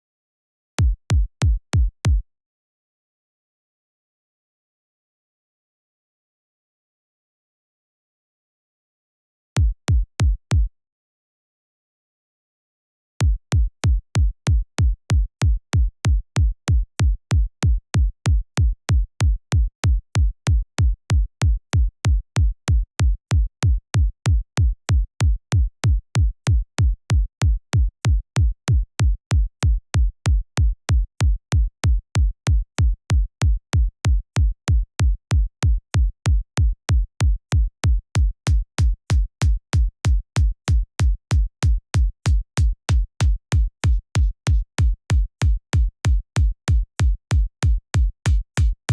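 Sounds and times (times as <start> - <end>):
electronic kick drum loop: 36.0 - 48.9.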